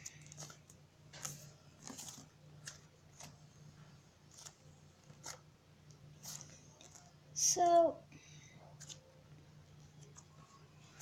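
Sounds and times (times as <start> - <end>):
slime squishing and crackling: 0.0 - 3.4, 4.2 - 7.4
low room hum: 0.0 - 11.0.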